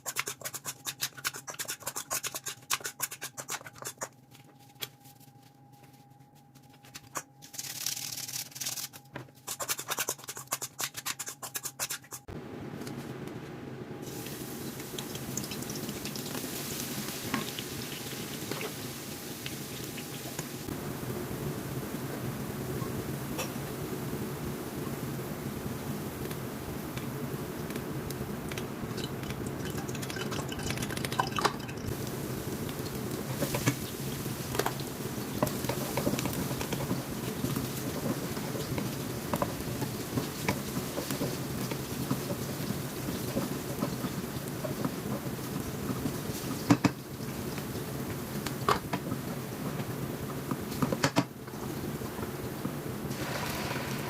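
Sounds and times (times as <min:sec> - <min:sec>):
hot oil sizzling: 0:14.0 - 0:49.7, 0:51.5 - 0:54.0
liquid sounds: 0:28.5 - 0:37.4, 0:53.1 - 0:54.0.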